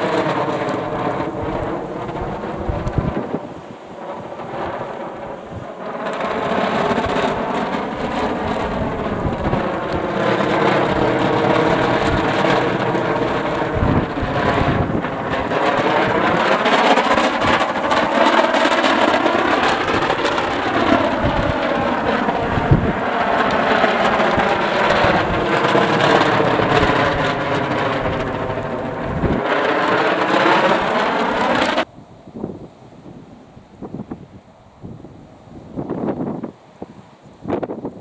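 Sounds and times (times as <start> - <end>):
kite humming drone: 0.0 - 38.0
wind buffeting microphone: 0.0 - 38.0.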